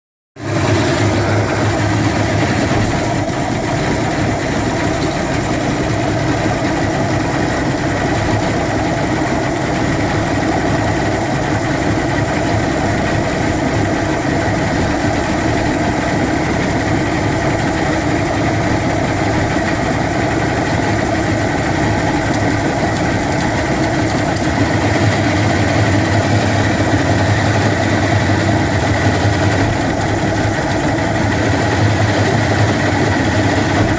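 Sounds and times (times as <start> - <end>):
outboard motor running: 0.4 - 33.9
rattle: 0.7 - 12.5, 20.4 - 33.9.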